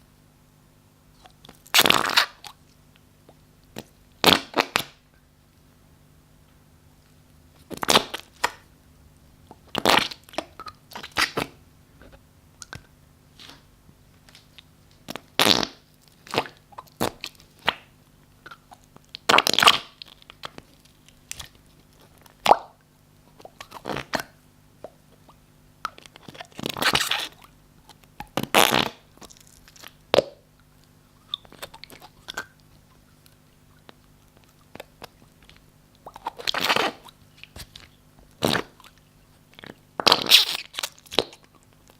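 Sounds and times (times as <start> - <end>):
slime squelching: 9.5 - 11.6, 14.3 - 24.3, 24.9 - 41.9.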